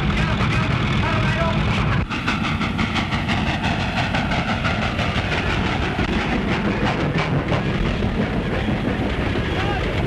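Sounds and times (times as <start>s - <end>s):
train wheels clattering on rails: 0.0s - 10.0s.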